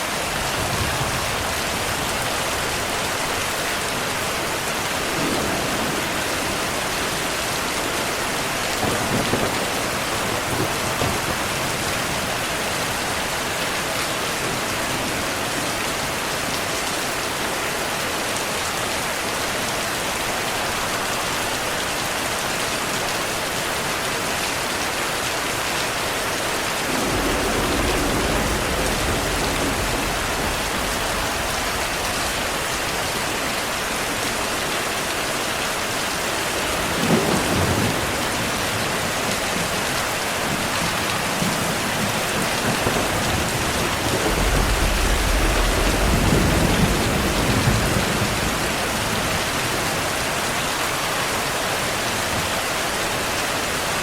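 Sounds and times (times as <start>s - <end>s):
heavy rain falling: 0.0s - 54.0s
thunder rumbling: 0.1s - 16.6s, 26.8s - 35.3s, 36.3s - 50.1s
sharp thunderclap: 5.1s - 7.2s, 8.7s - 12.2s, 26.8s - 34.3s, 40.5s - 49.5s.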